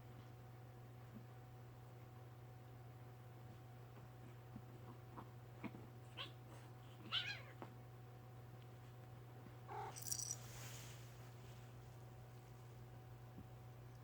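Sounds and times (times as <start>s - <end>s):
cat mewing: 9.7s - 10.4s.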